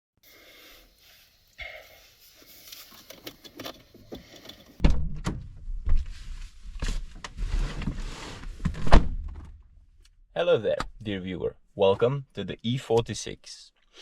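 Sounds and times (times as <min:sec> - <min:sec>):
rustling: 0:00.8 - 0:04.8.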